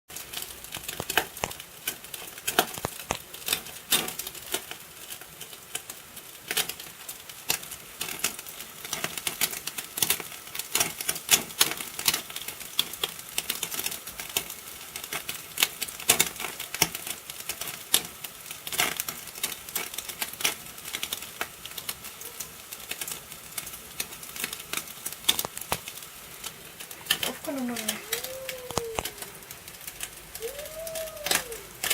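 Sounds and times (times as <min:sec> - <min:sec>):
meat sizzling and fat popping: 0:00.1 - 0:31.9.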